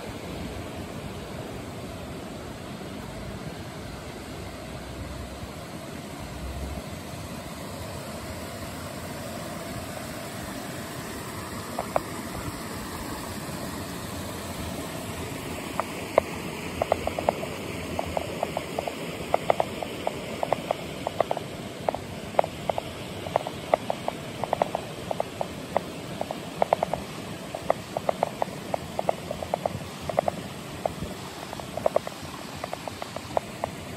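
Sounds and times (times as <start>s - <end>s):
stream running: 0.0s - 33.9s
water plinks and gurgles: 11.4s - 33.9s.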